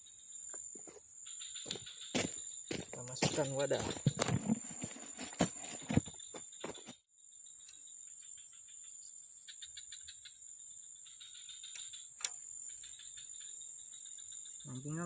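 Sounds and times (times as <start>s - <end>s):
insects droning: 0.0s - 15.0s
rapid pulsing insect calls: 0.0s - 15.0s
sharp click: 11.7s - 12.4s.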